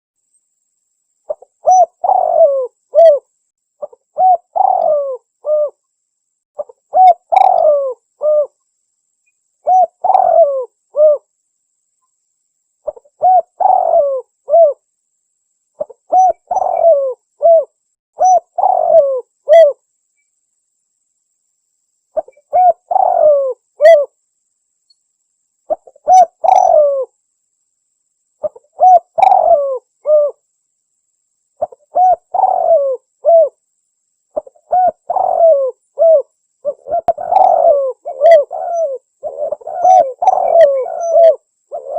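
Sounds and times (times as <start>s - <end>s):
dove cooing: 1.3s - 5.8s, 6.6s - 8.6s, 9.6s - 11.3s, 12.8s - 14.8s, 15.8s - 19.8s, 22.2s - 24.1s, 25.7s - 27.1s, 28.4s - 30.4s, 31.6s - 33.6s, 34.4s - 41.9s.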